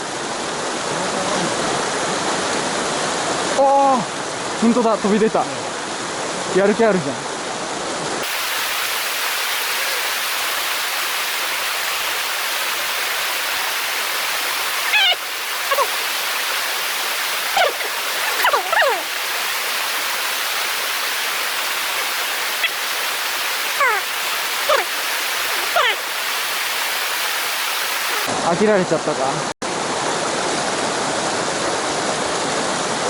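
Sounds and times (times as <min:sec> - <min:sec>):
stream rushing over rocks: 0:00.0 - 0:28.9, 0:29.6 - 0:33.0
short high falling calls: 0:08.2 - 0:28.3.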